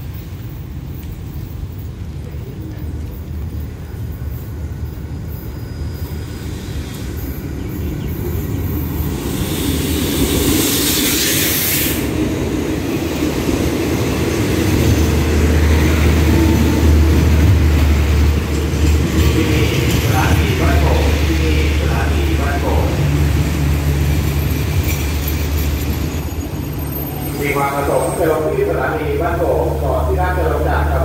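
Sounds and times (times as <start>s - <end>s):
deep rumble of wheels on rail: 0.0s - 31.0s
diesel locomotive rolling past: 0.0s - 31.0s
rushing hiss: 6.0s - 7.5s, 9.0s - 12.2s.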